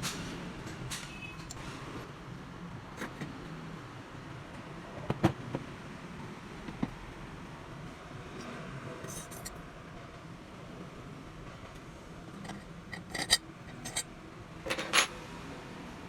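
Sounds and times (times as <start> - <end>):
hard objects clinking: 12.4 - 14.0, 14.7 - 15.2.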